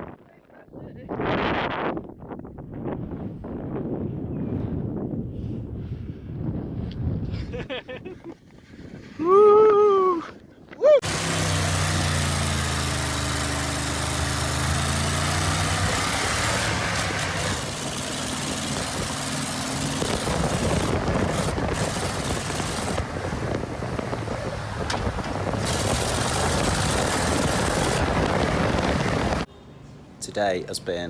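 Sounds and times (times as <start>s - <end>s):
vehicle engine running: 11.0s - 29.5s
loud rushing noise: 11.4s - 29.5s.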